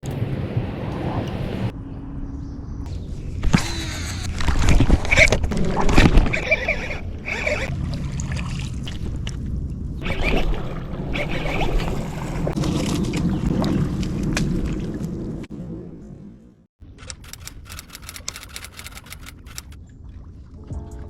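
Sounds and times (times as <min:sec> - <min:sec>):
water splashing and sloshing: 0:04.2 - 0:15.5, 0:17.5 - 0:21.0.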